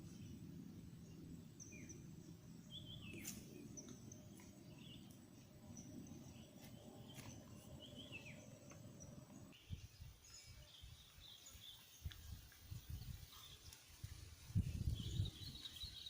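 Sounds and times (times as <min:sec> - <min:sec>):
bird chirps: 0:01.6 - 0:12.2.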